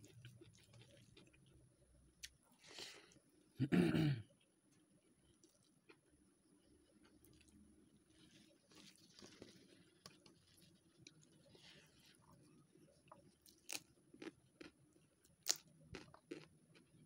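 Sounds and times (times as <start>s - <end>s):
soft chewing: 0.0s - 3.6s, 4.3s - 17.0s
loud crunches biting chilli: 15.4s - 17.0s.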